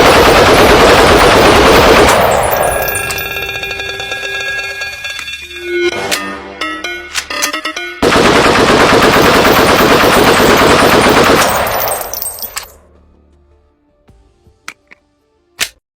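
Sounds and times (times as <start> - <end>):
automatic rifle fire: 0.0 - 2.9, 8.0 - 12.5.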